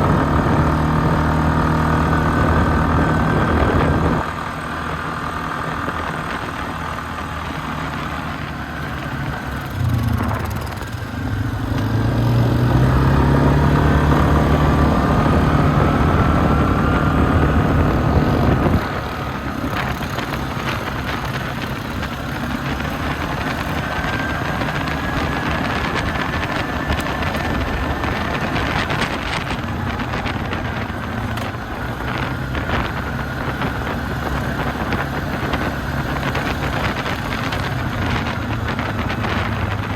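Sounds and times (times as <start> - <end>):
steady engine drone with whine: 0.0 - 39.9
engine revving up: 9.5 - 39.9.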